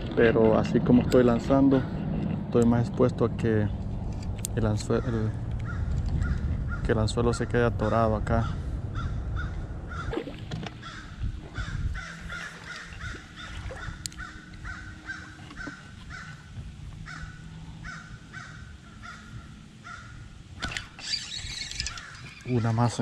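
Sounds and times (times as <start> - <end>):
bird calling harshly: 8.5 - 20.3, 20.9 - 23.0.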